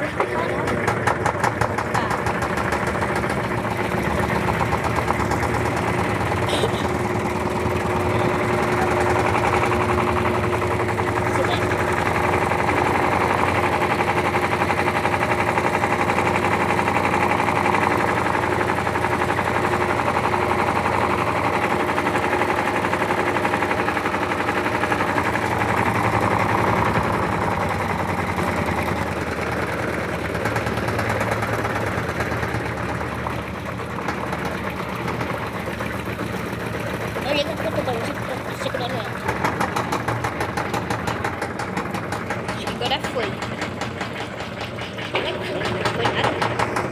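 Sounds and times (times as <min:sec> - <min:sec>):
washing machine rattling knock: 0:00.1 - 0:36.2, 0:37.0 - 0:46.9.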